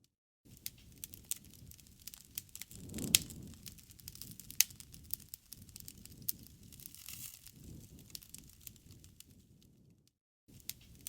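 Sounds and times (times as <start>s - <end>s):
campfire crackling and popping: 0.5s - 11.0s
soft rush of flame: 0.6s - 9.9s.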